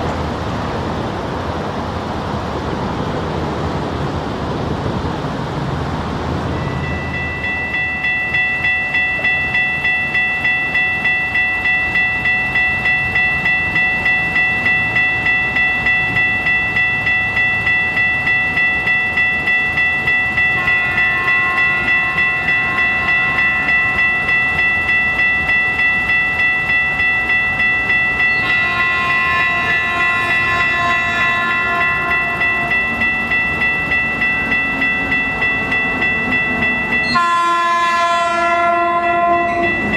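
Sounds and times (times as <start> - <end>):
crossing warning bell clanging: 5.8 - 39.9
train horn: 20.5 - 23.9, 28.3 - 32.7, 37.0 - 39.9.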